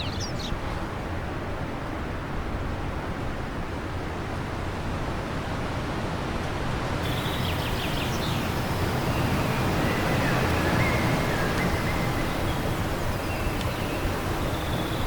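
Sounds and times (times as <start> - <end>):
bird chirps: 7.0 - 15.0
wind blowing: 7.0 - 15.0.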